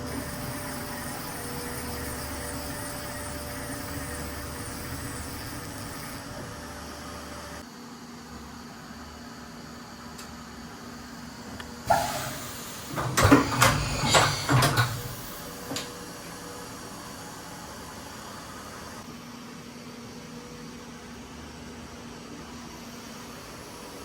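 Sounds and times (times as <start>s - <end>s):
machine humming: 0.0s - 7.6s
mechanical clunk: 11.9s - 16.0s.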